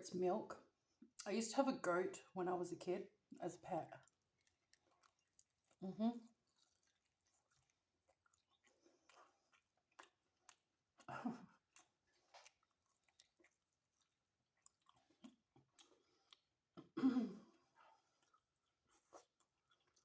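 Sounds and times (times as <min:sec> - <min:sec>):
chewing pizza: 0:03.1 - 0:20.0
wet mouth clicks: 0:14.6 - 0:17.0.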